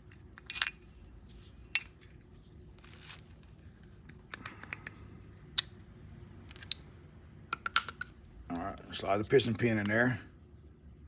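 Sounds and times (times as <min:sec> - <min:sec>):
small metal clicks and clinks: 0:00.0 - 0:02.2.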